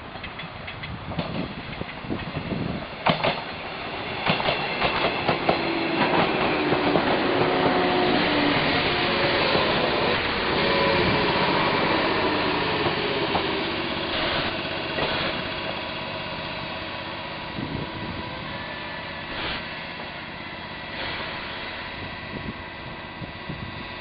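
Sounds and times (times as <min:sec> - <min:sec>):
train equipment humming: 0:00.0 - 0:24.0
short air hisses: 0:14.0 - 0:15.6, 0:19.2 - 0:19.8, 0:20.9 - 0:22.0.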